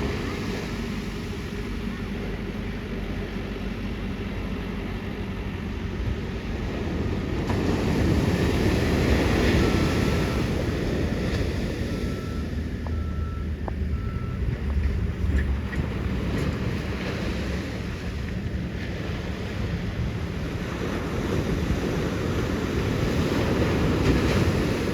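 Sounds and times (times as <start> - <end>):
ocean wave breaking: 6.4 - 14.1, 14.9 - 24.9
short faint beeps: 9.5 - 14.8.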